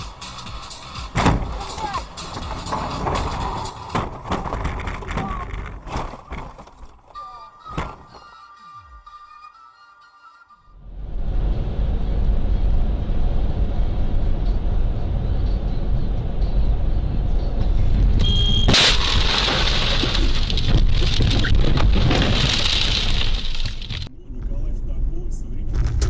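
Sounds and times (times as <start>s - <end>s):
road and engine rumble: 0.0s - 9.6s, 10.4s - 26.0s
scraping and clattering: 1.1s - 8.2s, 18.7s - 24.1s
sudden loud bang: 25.7s - 26.0s.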